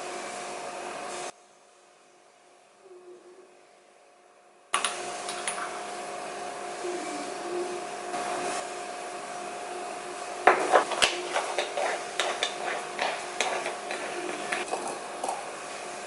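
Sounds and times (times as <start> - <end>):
steady hum: 2.2 - 16.0
hard objects clinking and knocking: 10.5 - 15.5.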